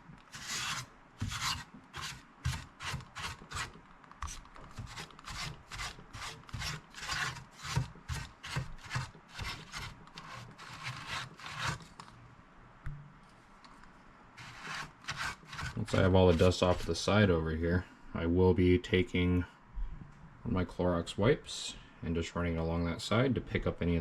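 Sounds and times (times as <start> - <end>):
brush sweeping dust: 14.4 - 17.0.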